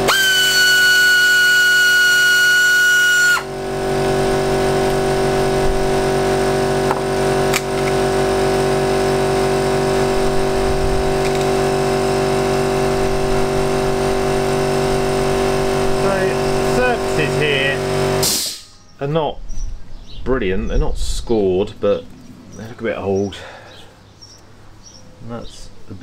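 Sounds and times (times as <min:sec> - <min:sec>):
power tool whine: 0:00.0 - 0:18.4
low machine hum: 0:00.0 - 0:26.0.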